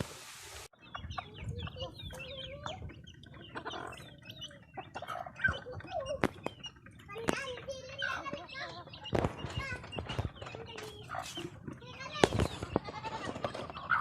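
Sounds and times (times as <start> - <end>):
steady rushing hiss: 0.0 - 0.7
chickens clucking: 0.7 - 14.0.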